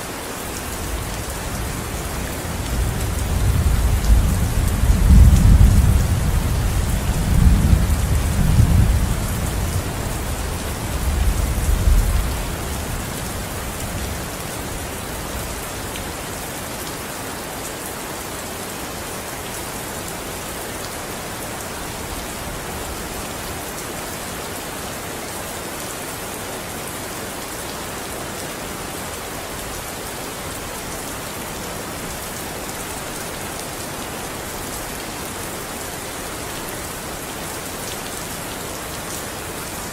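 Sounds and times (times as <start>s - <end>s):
steady rain falling: 0.0s - 39.9s
low rumble of thunder: 1.5s - 14.1s.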